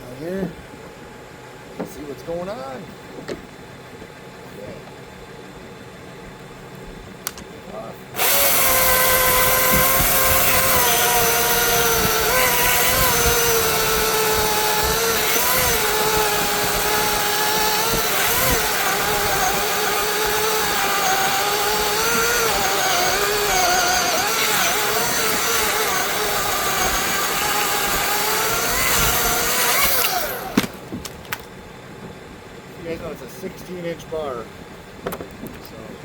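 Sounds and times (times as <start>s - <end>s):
chainsaw cutting wood: 8.1s - 31.4s.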